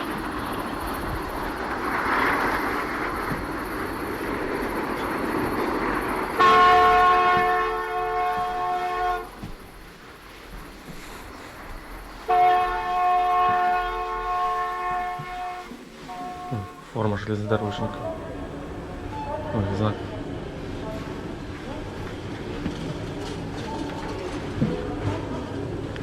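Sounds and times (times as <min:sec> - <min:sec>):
steady rushing noise: 0:00.0 - 0:07.9, 0:09.2 - 0:13.3
train horn blasts: 0:06.4 - 0:09.5, 0:12.3 - 0:17.0.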